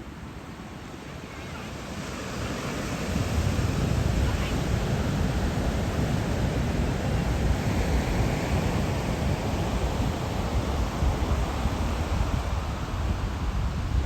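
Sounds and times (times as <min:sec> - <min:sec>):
wind rumbling on microphone: 0:03.1 - 0:14.0.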